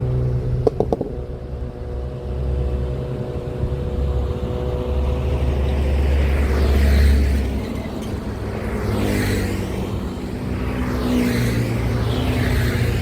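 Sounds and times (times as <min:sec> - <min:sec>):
heavy truck engine running: 0:00.0 - 0:08.8.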